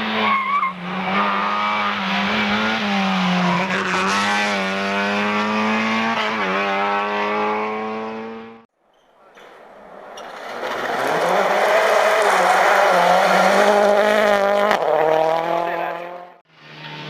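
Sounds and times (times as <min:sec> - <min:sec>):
race car engine at high revs: 0:00.0 - 0:08.7, 0:10.6 - 0:17.0
tyre squeal: 0:00.2 - 0:01.4.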